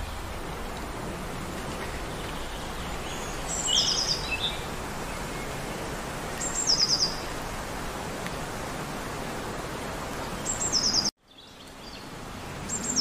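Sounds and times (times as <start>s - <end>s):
outdoor background hiss: 0.0s - 13.0s
small bird singing: 2.1s - 5.6s, 6.3s - 7.3s, 10.4s - 13.0s.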